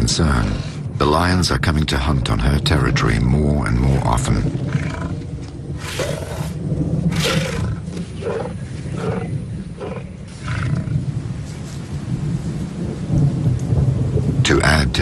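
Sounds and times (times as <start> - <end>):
low rumble: 0.0 - 15.0
lion roaring: 3.9 - 11.1.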